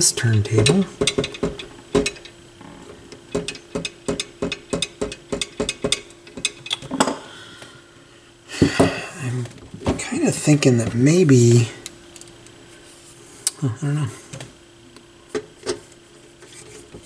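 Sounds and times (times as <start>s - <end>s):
faint steady hum: 0.0s - 17.0s
turntable clicks and knocks: 0.3s - 6.9s.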